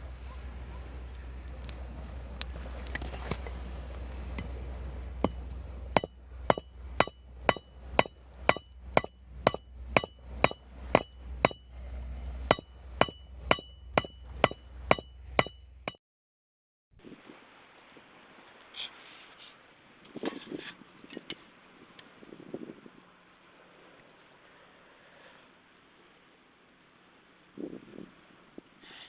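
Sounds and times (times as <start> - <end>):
hammer ringing on anvil: 5.2 - 11.8, 12.5 - 16.0.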